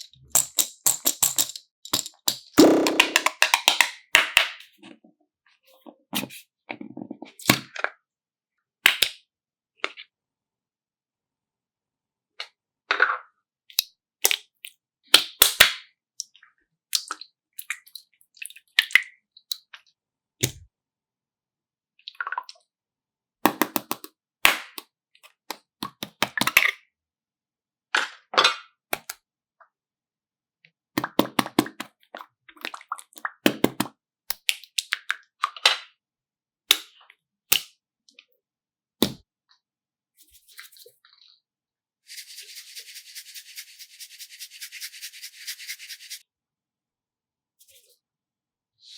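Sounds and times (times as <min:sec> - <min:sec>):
objects being handled clicking: 0:00.0 - 0:03.9, 0:23.5 - 0:24.1, 0:29.0 - 0:29.2.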